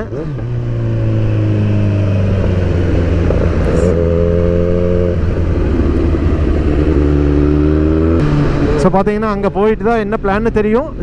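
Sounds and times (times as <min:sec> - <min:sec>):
motorcycle engine running: 0:00.0 - 0:09.3
wind rush: 0:00.9 - 0:09.1.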